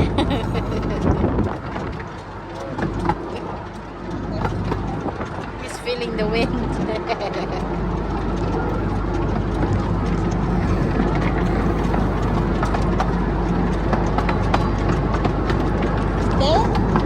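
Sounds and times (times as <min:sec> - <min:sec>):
wind noise: 0:00.0 - 0:03.4
vehicle rumble: 0:00.0 - 0:17.0.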